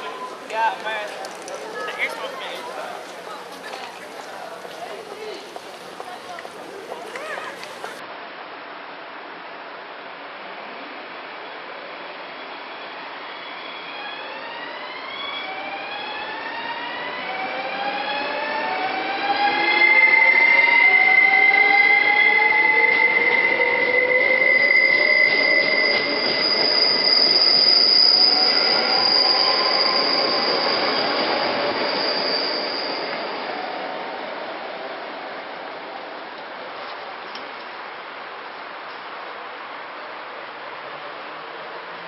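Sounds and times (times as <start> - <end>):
high-pitched wheel squeal: 19.3 - 33.7.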